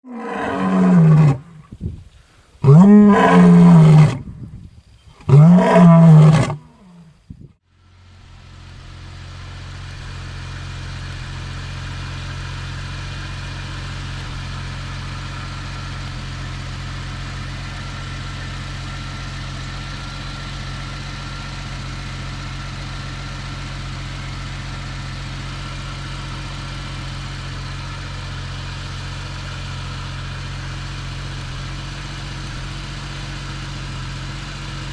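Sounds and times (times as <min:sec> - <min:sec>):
car engine revving: 0:02.6 - 0:04.3, 0:05.2 - 0:07.0
car engine idling: 0:05.1 - 0:34.9.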